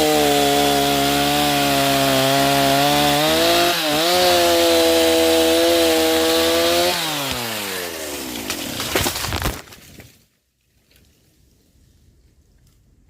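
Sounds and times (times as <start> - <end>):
chainsaw engine revving: 0.0 - 9.0
sharp cracks: 8.2 - 10.0.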